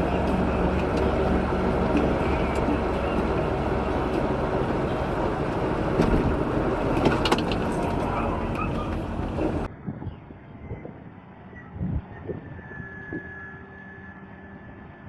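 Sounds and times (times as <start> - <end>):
heavy equipment engine running: 0.0 - 9.8.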